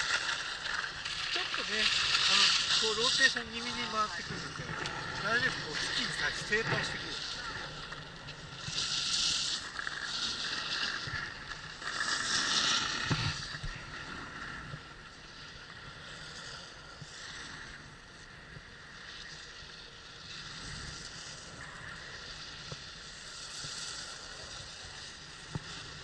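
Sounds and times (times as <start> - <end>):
skis scraping over snow: 0.0 - 26.0
wind rumbling on microphone: 0.0 - 26.0.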